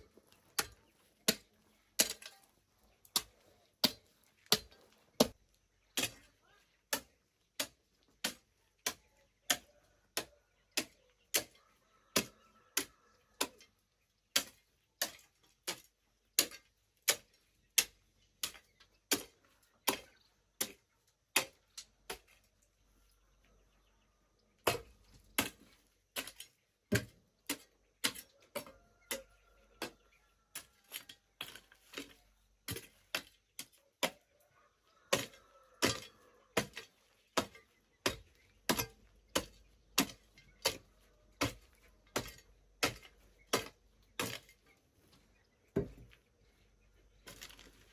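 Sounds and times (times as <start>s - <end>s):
hand tool striking: 36.6s - 44.5s.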